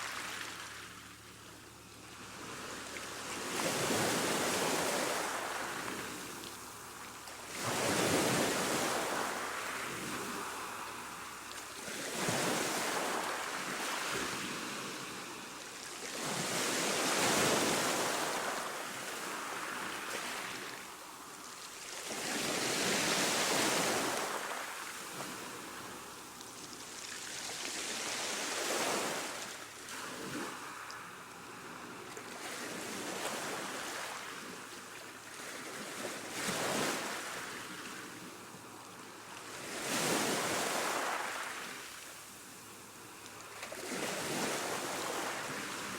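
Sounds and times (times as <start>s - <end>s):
ocean waves washing in: 7.4s - 21.2s.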